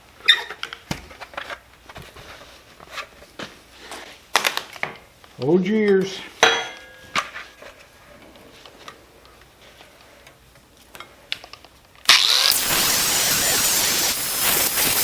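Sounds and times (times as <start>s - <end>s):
angle grinder grinding steel: 12.2s - 15.0s.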